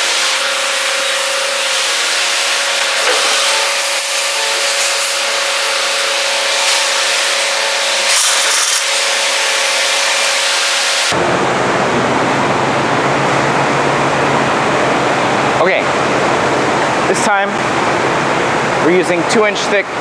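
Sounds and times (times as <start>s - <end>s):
bandsaw running: 0.0s - 11.2s.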